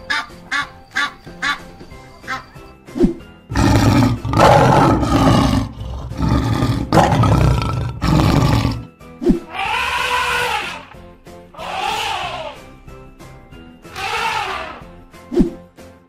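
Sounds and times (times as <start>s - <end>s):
background music: 0.0s - 16.0s
cartoon lion roaring: 3.5s - 8.9s.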